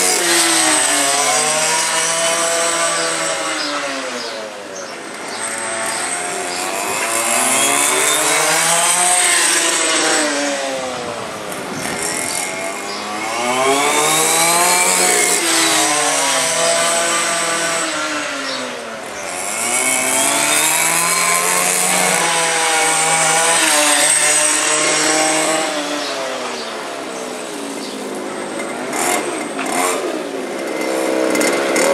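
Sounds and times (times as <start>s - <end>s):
rc car engines buzzing past: 0.0s - 31.9s.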